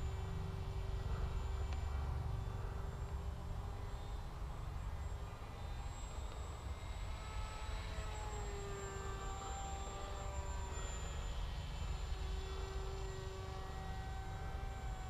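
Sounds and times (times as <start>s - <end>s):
model plane motor whining: 5.0s - 15.0s.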